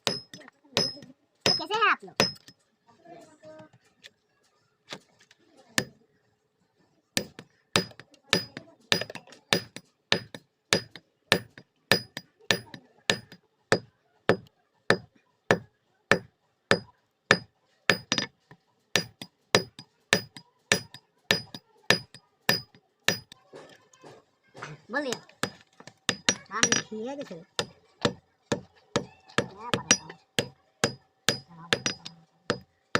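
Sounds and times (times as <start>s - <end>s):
hammer striking iron on anvil: 0.0s - 2.5s, 7.2s - 18.3s, 19.0s - 23.4s, 25.1s - 26.9s, 27.6s - 32.7s.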